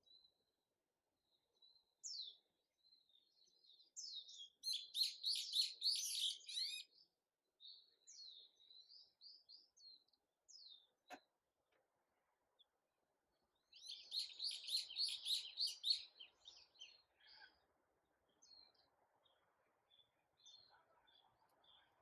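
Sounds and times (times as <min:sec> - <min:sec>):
small songbirds chirping: 0:00.0 - 0:11.4, 0:12.4 - 0:22.0.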